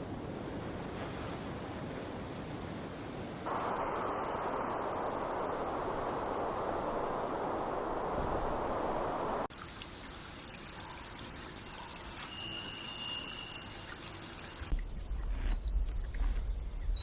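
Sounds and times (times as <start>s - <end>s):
running water rushing: 3.5s - 15.2s
water trickling with ticks: 9.5s - 17.0s
thin high whistle: 12.2s - 14.1s.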